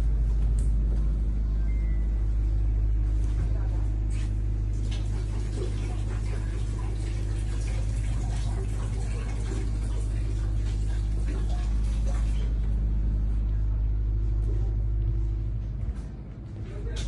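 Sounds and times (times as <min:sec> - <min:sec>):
low rumble: 0:09.6 - 0:17.0.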